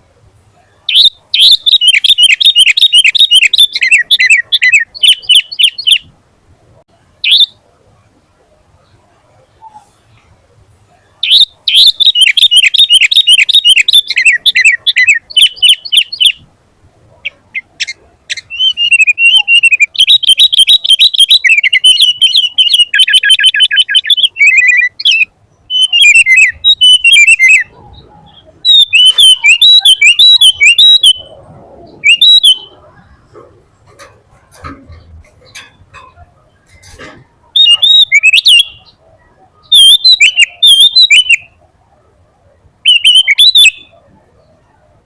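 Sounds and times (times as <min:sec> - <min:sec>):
bird singing high fast notes: 0:00.9 - 0:06.1, 0:11.2 - 0:16.5, 0:17.2 - 0:41.6, 0:42.8 - 0:44.0.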